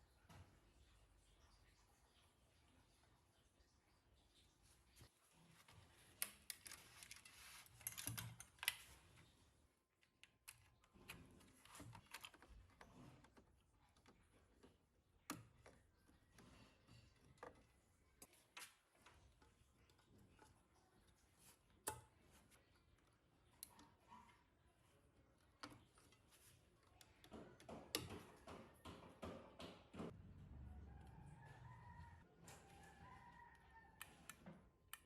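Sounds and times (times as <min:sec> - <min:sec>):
hands clicking and tapping parts: 0:05.6 - 0:09.2, 0:09.9 - 0:30.2, 0:32.0 - 0:35.0.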